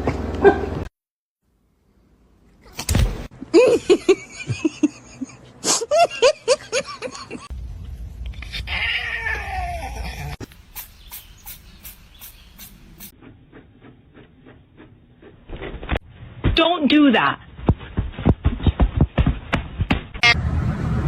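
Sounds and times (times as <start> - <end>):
falling cry: 8.5 - 10.4.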